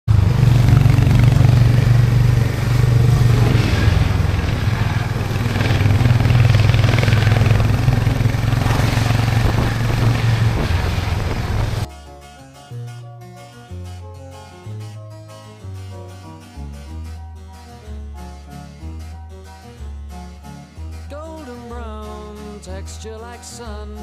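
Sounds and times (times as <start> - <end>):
motorcycle engine running: 0.0 - 11.9
soft harpsichord music: 11.4 - 24.0.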